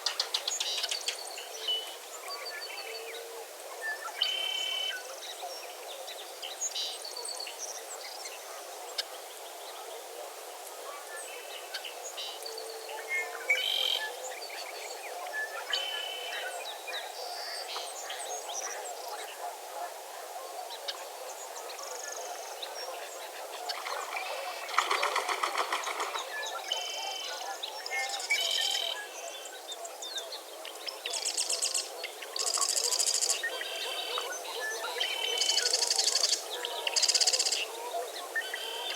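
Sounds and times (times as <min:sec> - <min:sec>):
frog chorus: 0:10.9 - 0:38.9
birds calling and chirping: 0:21.9 - 0:38.9
loud rapid rattling call: 0:24.0 - 0:26.3.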